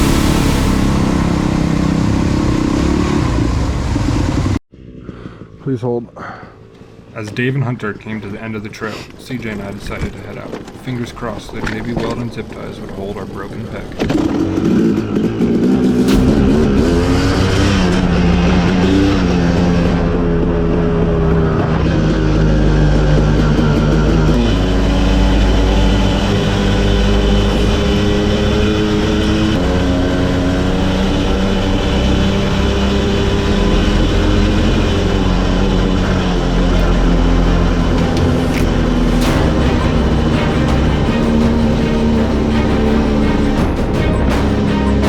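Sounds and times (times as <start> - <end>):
dirt bike engine running: 0.0 - 5.0, 14.0 - 45.0.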